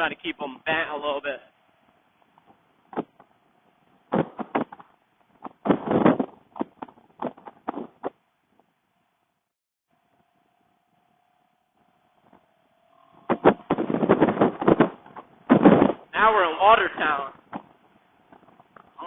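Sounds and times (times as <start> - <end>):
thumps on microphone: 2.4 - 3.3, 4.1 - 8.2, 13.2 - 16.1.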